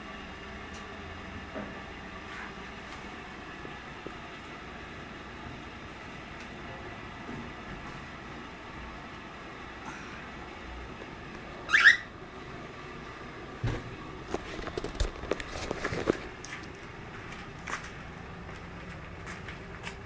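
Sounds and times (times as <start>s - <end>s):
cockatiel call: 11.7s - 12.1s.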